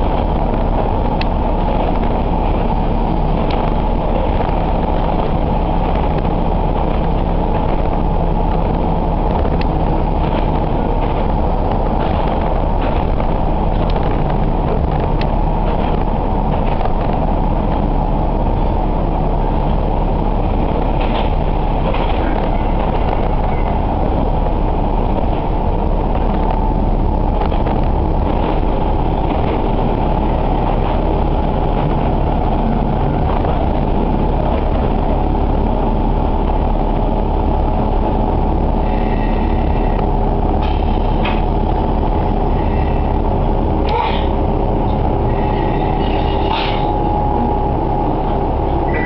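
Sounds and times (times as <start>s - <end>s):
railcar engine and wheels rumble: 0.0s - 49.0s
brakes squealing: 38.4s - 49.0s.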